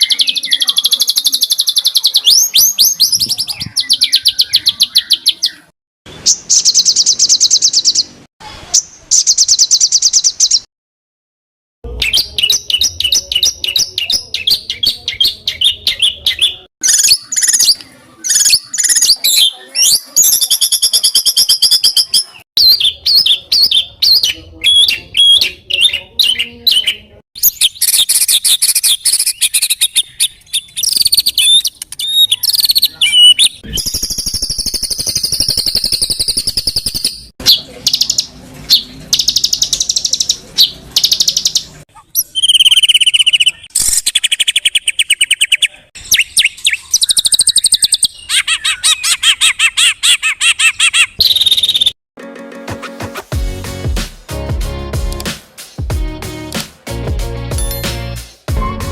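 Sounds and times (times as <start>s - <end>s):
songbird chattering and trilling: 0.0s - 8.2s, 12.0s - 52.0s.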